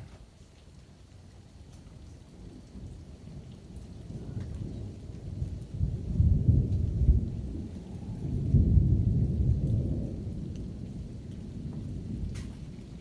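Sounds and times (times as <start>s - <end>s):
rain falling: 0.0s - 13.0s
thunder rumbling: 2.1s - 13.0s.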